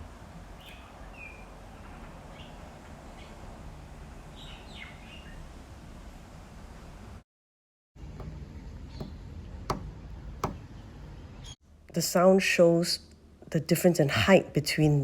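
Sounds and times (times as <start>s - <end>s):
birds chirping: 8.0s - 11.6s.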